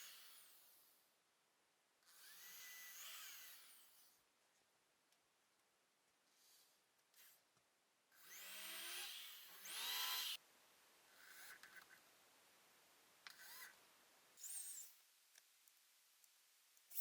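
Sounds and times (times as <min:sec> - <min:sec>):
power drill whining: 0:02.1 - 0:04.1, 0:08.2 - 0:10.4.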